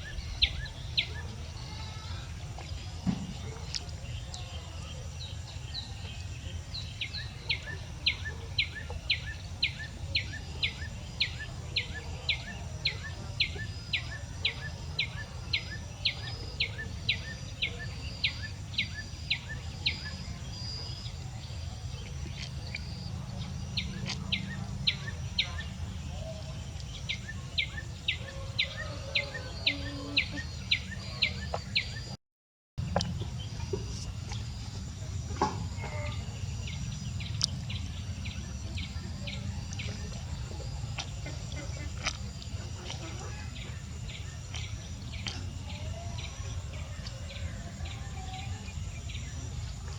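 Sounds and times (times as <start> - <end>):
bird chirping: 0.0 - 32.2.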